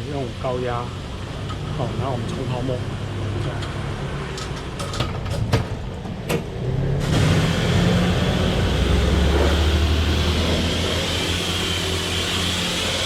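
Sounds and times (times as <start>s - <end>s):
water jet hissing: 0.0s - 4.2s, 7.0s - 13.0s
pressure washer motor hum: 7.0s - 13.0s.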